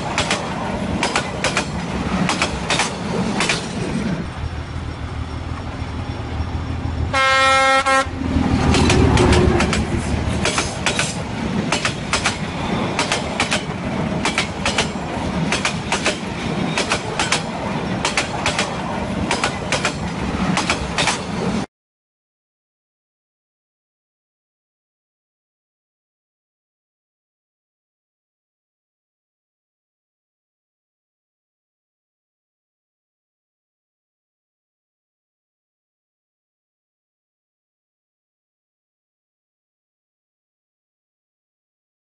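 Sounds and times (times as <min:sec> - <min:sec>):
train wheels clacking over rail joints: 0:00.0 - 0:04.4, 0:08.4 - 0:21.7
train horn blast: 0:07.1 - 0:08.2.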